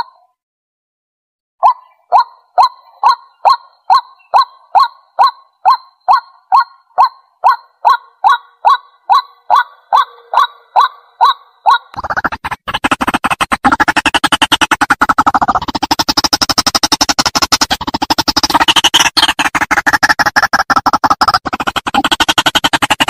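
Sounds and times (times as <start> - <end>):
waterhen calling: 1.6 - 12.0.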